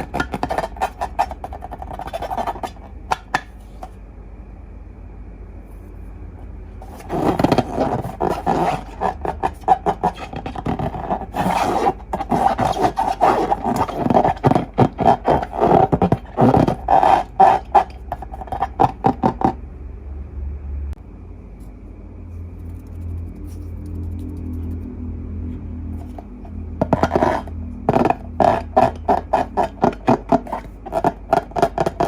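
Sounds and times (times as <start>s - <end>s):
hands rubbing slime and balloons: 6.8s - 19.4s.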